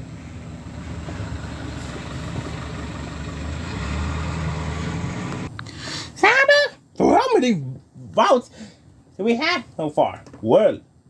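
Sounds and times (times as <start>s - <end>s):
low mechanical rumble: 0.0s - 5.6s.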